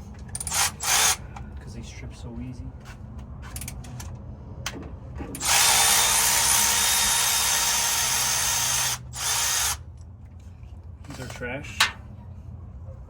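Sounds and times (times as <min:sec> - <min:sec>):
power driver whirring: 0:00.4 - 0:01.2, 0:05.4 - 0:09.8.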